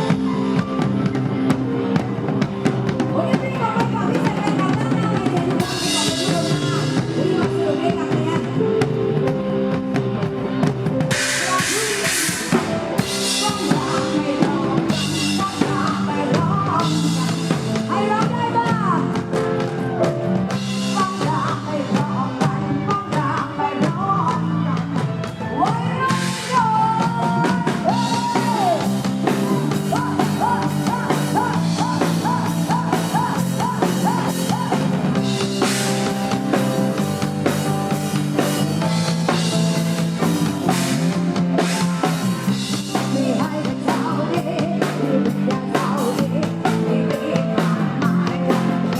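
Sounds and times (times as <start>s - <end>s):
drum kit: 0.0s - 48.9s
live band music: 0.0s - 48.9s
person singing: 3.0s - 9.8s, 11.1s - 48.9s.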